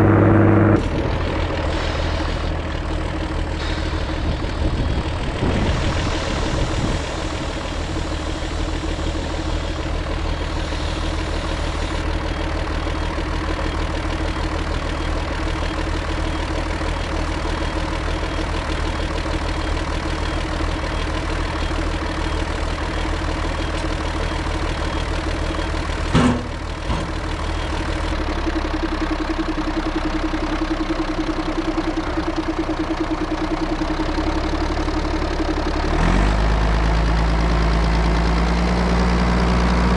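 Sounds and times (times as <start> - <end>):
tractor diesel engine running: 0.0 - 39.9
sharp knock: 26.1 - 27.1.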